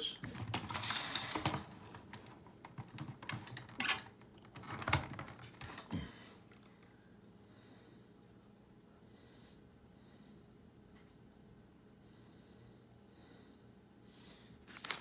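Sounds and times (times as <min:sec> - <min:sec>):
plastic toy track clicks and knocks: 0:00.4 - 0:05.9.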